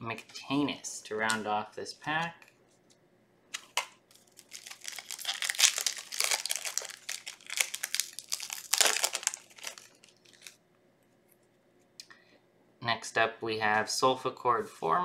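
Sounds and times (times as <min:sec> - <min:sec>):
foil wrapper crinkling: 0:04.1 - 0:10.6.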